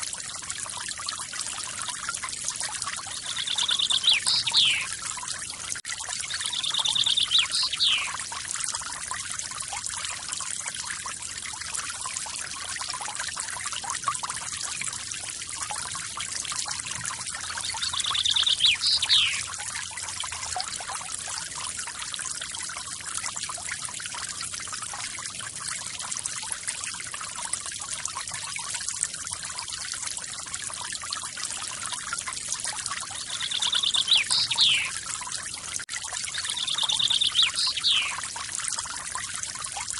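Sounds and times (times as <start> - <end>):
bird trilling: 3.4 - 4.9, 6.5 - 8.1, 17.7 - 19.5, 33.3 - 34.9, 36.4 - 38.2.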